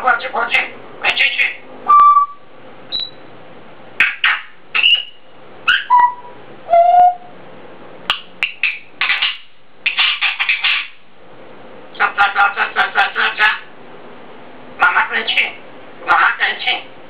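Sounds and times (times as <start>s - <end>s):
parrot whistling: 1.9s - 3.2s, 4.0s - 7.3s, 8.1s - 10.9s
raspy chattering: 8.4s - 10.9s, 12.0s - 13.7s.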